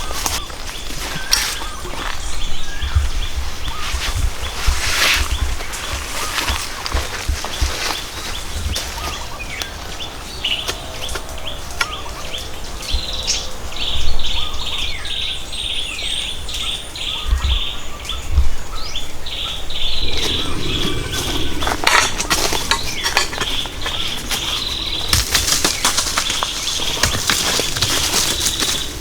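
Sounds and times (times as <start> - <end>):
birds singing: 0.0 - 29.0.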